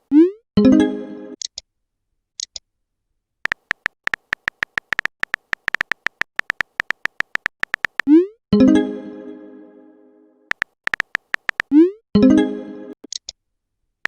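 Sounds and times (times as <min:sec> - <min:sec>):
keyboard typing clicks: 0:03.4 - 0:08.2, 0:10.5 - 0:11.8.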